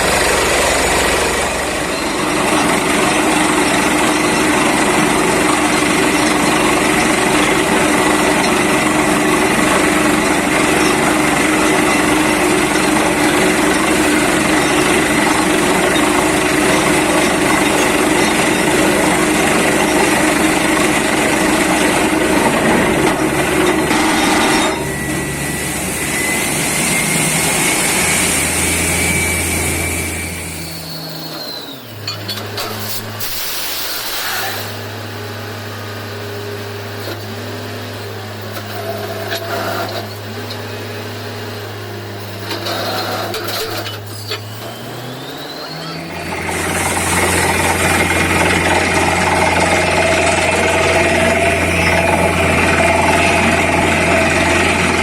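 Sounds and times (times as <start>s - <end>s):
drilling rig running: 0.0s - 55.0s
machine whine: 0.0s - 55.0s.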